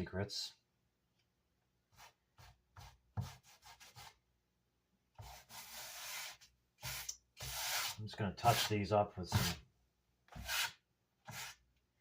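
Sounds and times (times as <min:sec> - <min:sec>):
hand sanding wood: 0:05.2 - 0:09.6, 0:10.3 - 0:11.6.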